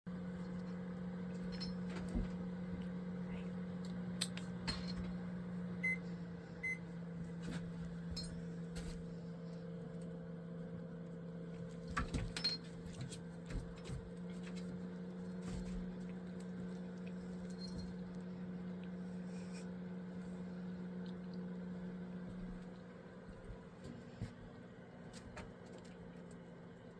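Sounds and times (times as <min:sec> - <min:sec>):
low electrical hum: 0:00.1 - 0:26.9.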